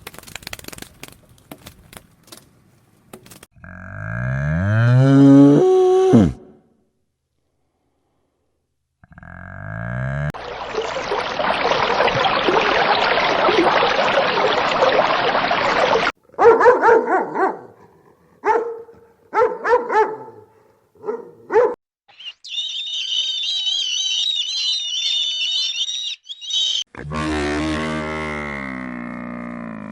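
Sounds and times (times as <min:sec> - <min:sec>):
dog barking and yipping: 0:16.4 - 0:17.7, 0:18.4 - 0:21.8
high warbling chirping: 0:22.1 - 0:26.9.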